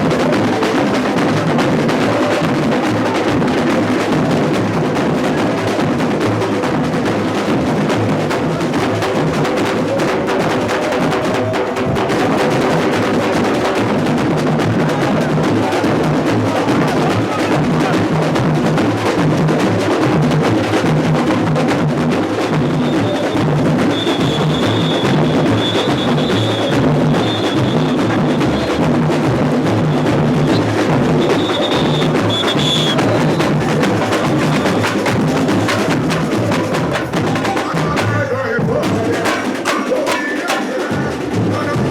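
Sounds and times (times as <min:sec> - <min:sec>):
samba drumming: 0:00.0 - 0:41.9
snares and small percussion: 0:11.2 - 0:37.6
bass drums pulsing: 0:11.2 - 0:38.0.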